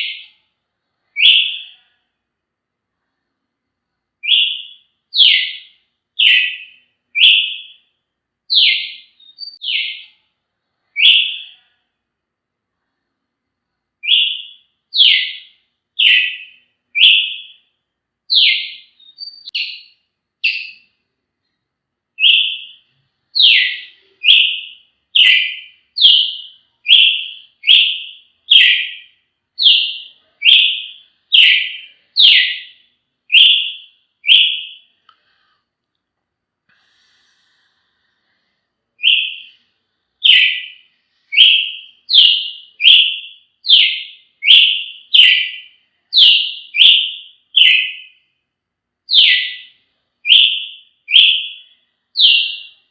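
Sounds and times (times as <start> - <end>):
bird singing whistled notes: 1.0 - 2.0, 4.2 - 7.9, 8.5 - 10.2, 10.8 - 11.7, 14.0 - 17.7, 18.3 - 20.9, 22.2 - 34.9, 39.0 - 39.6, 40.2 - 48.3, 49.1 - 52.9.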